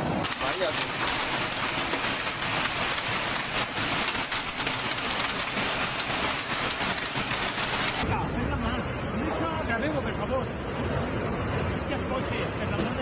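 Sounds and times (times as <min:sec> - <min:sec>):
heavy rain pouring: 0:00.0 - 0:08.1.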